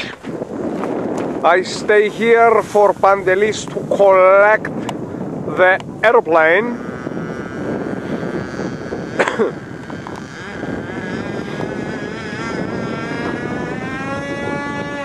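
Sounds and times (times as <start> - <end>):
wind noise: 0.0 - 15.0
model aircraft motor whining: 6.3 - 15.0.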